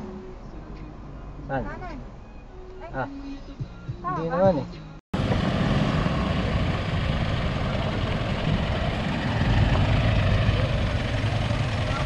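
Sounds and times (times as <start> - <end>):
diesel engine driving slowly: 5.2 - 12.0
tyre and road noise: 5.2 - 12.0.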